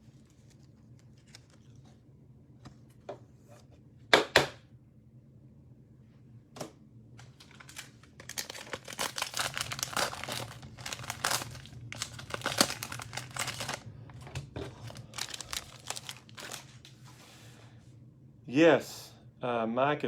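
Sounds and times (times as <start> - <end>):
cellophane wrapper crinkling and tearing: 0.0 - 1.8, 7.2 - 16.9.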